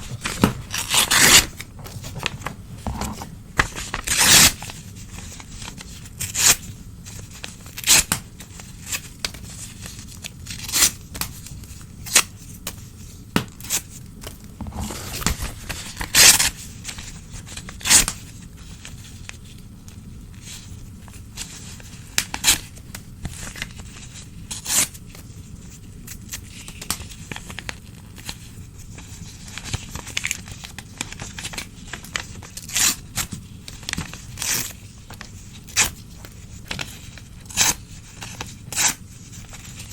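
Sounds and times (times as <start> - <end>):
newspaper tearing: 0.0 - 2.4, 3.0 - 4.7, 14.7 - 16.5
paper rustling: 0.0 - 6.5, 14.6 - 17.2.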